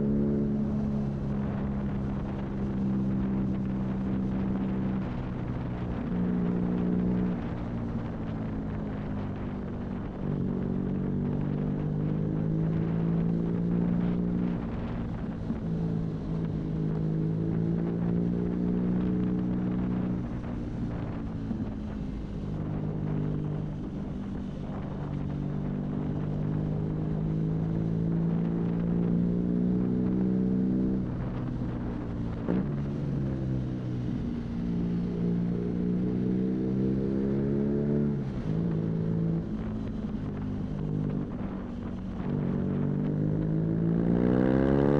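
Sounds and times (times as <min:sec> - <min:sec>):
wind rush: 0:00.0 - 0:44.9
motorcycle engine revving: 0:22.0 - 0:44.9.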